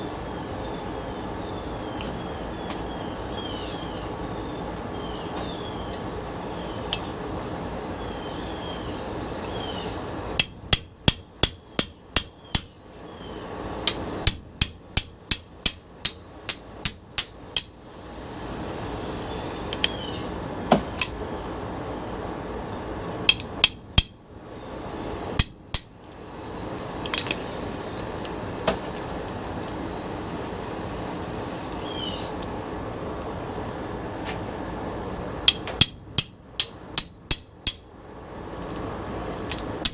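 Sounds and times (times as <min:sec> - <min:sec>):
hammer striking metal parts: 0:10.4 - 0:12.8, 0:13.8 - 0:17.8, 0:19.7 - 0:20.0, 0:23.3 - 0:24.2, 0:25.4 - 0:26.2, 0:27.0 - 0:27.4, 0:35.4 - 0:37.9, 0:38.6 - 0:39.9.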